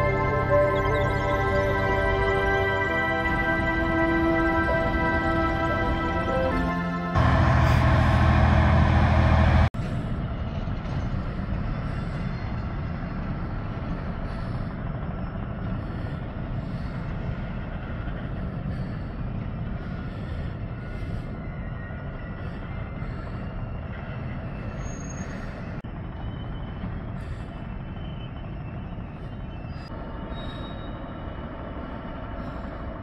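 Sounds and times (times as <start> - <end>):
diesel locomotive hauling wagons: 0.0 - 33.0.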